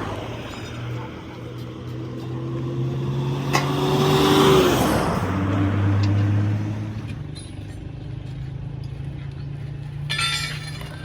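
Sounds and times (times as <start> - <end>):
vehicle passing by: 0.0 - 7.3.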